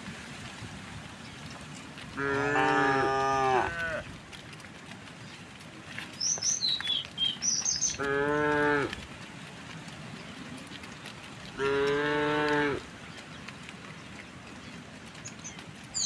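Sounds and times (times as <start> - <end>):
cattle mooing: 2.1 - 4.0, 8.0 - 9.0, 11.6 - 12.8
bird chirping: 6.2 - 8.1.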